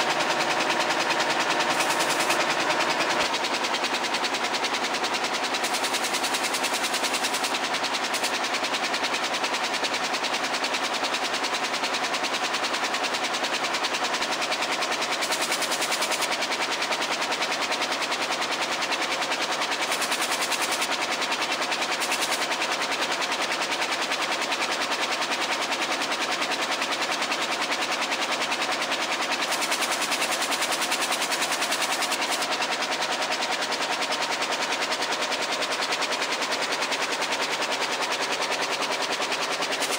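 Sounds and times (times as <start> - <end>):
loom mechanical clatter: 0.0 - 39.9.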